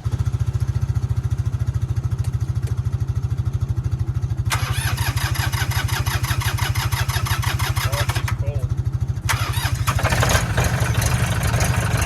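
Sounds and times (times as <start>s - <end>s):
engine running with low pulse: 0.0s - 12.0s.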